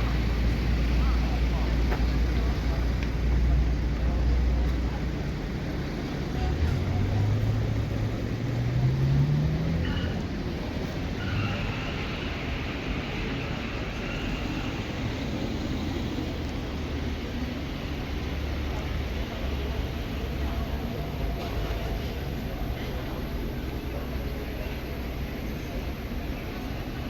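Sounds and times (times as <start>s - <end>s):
street traffic rumble: 0.0s - 27.0s
car engine accelerating: 6.4s - 12.8s.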